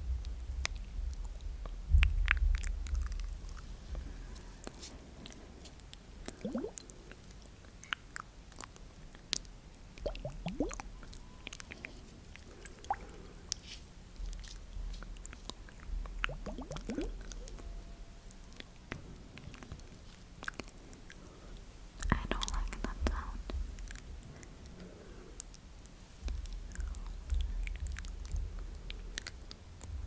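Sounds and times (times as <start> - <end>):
upward-sliding wet mouth sounds: 6.2 - 10.9, 11.6 - 13.3, 15.4 - 17.6, 20.4 - 21.2
wet mouth clicks and smacks: 6.2 - 11.8, 12.4 - 13.6, 15.2 - 17.6, 20.4 - 21.2, 26.3 - 29.5.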